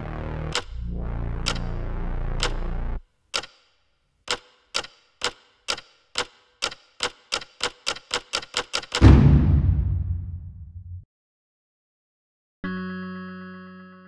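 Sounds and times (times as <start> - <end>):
clock-like ticks: 0.5 - 0.8, 1.4 - 2.7, 3.3 - 3.7, 4.3 - 9.0
loud deep boom: 9.0 - 11.0.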